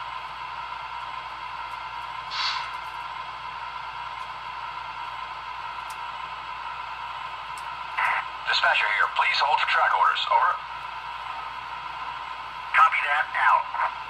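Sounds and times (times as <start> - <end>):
steam hiss from small speaker: 2.3 - 2.8.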